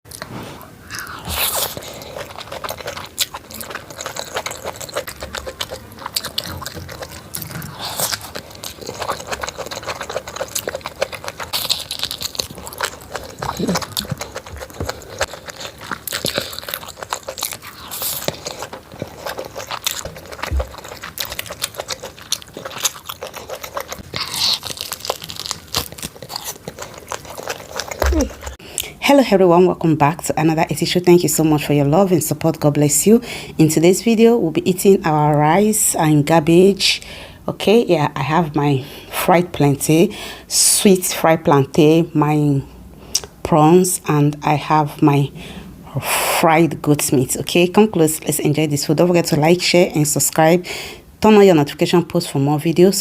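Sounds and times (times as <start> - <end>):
crunching fried food: 1.0 - 28.6.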